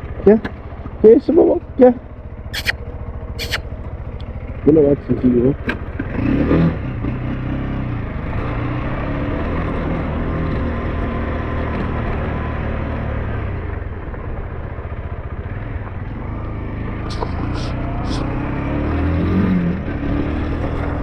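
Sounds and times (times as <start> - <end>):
scooter engine running: 0.0 - 21.0
sharp clicks: 2.6 - 2.8, 3.4 - 3.6.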